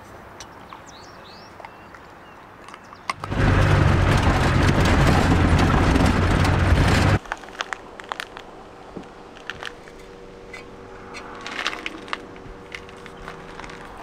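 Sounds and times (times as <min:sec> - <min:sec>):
road noise: 0:00.0 - 0:14.0
low engine drone: 0:03.2 - 0:07.2, 0:09.3 - 0:14.0.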